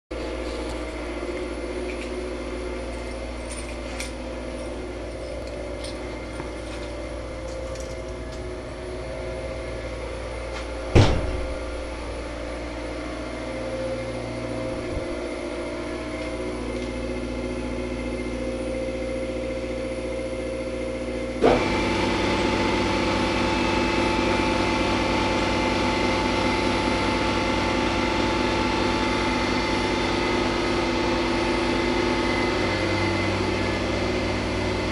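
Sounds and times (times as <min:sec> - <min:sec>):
refrigeration machinery humming: 0:00.1 - 0:34.9
vacuum cleaner running: 0:00.2 - 0:34.9
sharp knock: 0:10.9 - 0:11.5.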